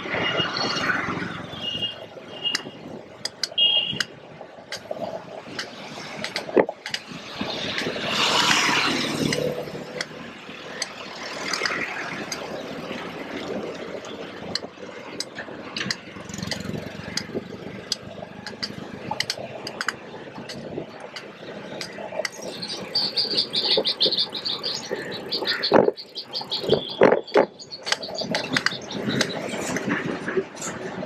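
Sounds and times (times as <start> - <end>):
traffic running by: 0.0 - 31.0
clicks and knocks: 5.6 - 7.0, 17.9 - 22.4.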